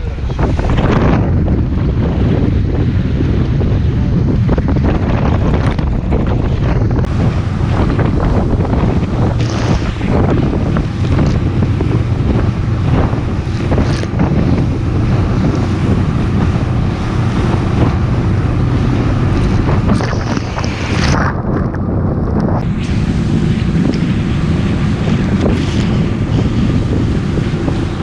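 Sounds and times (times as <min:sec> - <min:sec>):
boat motor running: 0:00.0 - 0:28.0
hull slapping waves: 0:00.0 - 0:28.0
wind buffeting microphone: 0:00.0 - 0:28.0.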